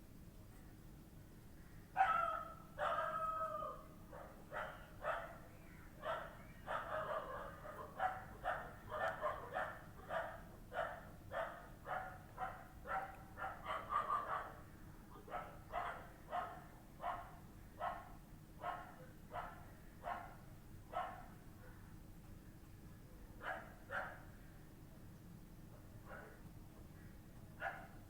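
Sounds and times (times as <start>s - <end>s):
dog barking: 2.0s - 3.3s, 4.1s - 5.4s, 6.0s - 14.6s, 15.3s - 21.8s, 23.4s - 24.3s, 26.0s - 26.4s, 27.6s - 28.0s.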